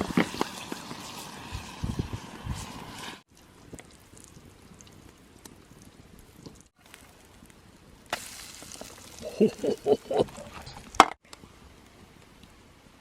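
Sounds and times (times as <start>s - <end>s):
food sizzling in a pan: 0.0s - 3.2s, 8.1s - 9.5s.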